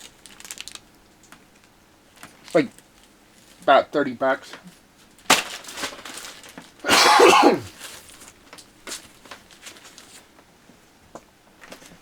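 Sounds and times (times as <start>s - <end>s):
loud cough: 6.9s - 7.7s.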